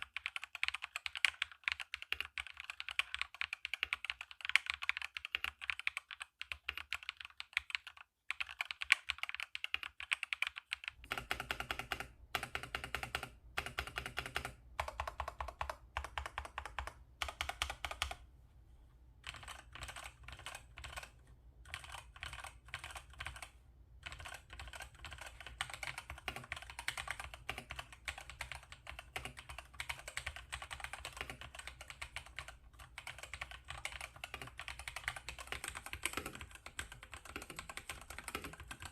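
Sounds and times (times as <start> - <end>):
mechanical keyboard typing: 0.0 - 18.2, 19.2 - 38.9.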